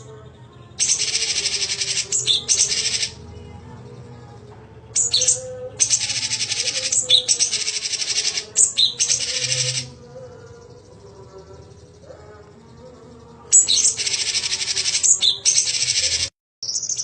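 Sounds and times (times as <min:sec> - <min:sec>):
songbird singing trilled phrases: 0:00.0 - 0:03.2, 0:05.0 - 0:17.0.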